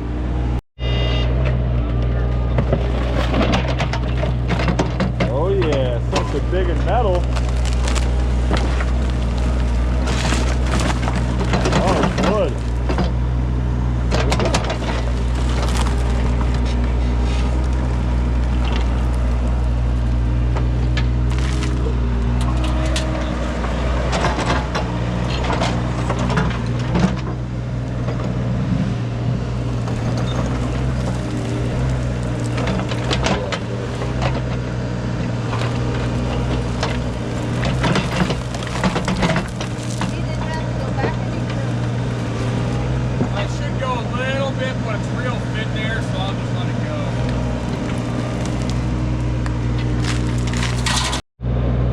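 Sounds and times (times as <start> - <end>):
digging machine engine: 0.0 - 51.9
bucket scraping and knocking: 2.5 - 13.2, 14.1 - 19.5, 29.8 - 34.6, 35.3 - 43.6, 47.1 - 51.2.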